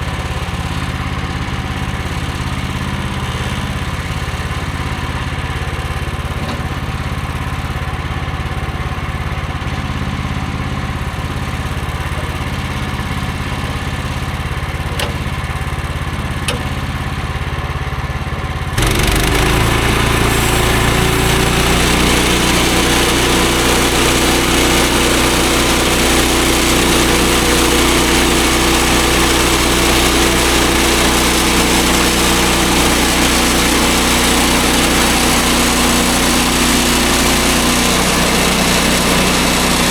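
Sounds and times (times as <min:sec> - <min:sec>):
sawmill engine running: 0:00.0 - 0:39.9
band blade rushing noise: 0:18.8 - 0:27.4.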